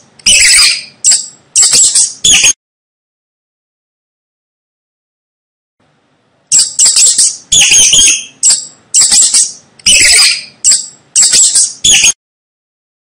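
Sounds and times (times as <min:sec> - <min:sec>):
mouse squeaking: 0:00.0 - 0:02.6, 0:06.5 - 0:12.2.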